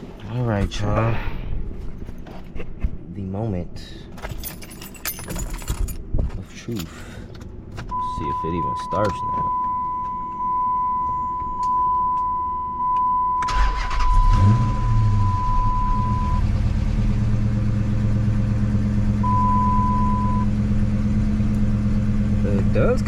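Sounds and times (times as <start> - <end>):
high electronic beep: 8.0 - 16.4, 19.2 - 20.5
car engine cranking and idling: 12.9 - 23.0.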